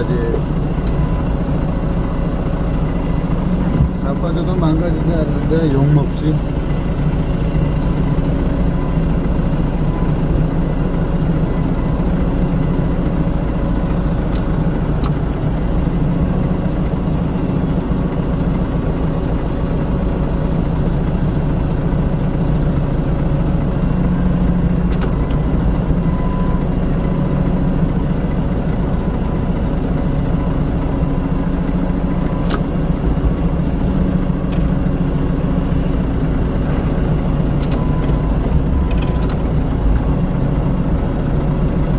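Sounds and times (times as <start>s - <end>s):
forklift engine running: 0.0s - 41.9s
sharp metallic clicks: 14.2s - 15.2s, 24.8s - 25.4s, 37.5s - 39.5s.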